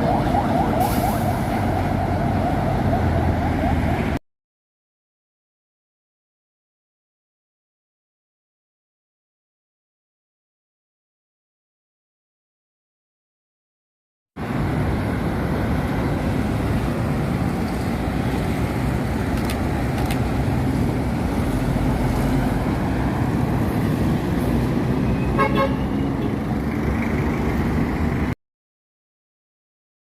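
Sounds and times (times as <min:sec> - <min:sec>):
road traffic rumble: 0:00.0 - 0:04.2, 0:14.4 - 0:28.4
short horn toot: 0:25.2 - 0:25.9.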